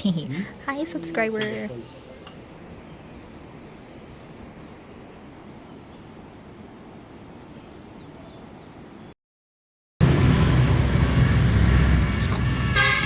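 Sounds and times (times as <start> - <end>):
outdoor background hum: 10.0 - 13.0.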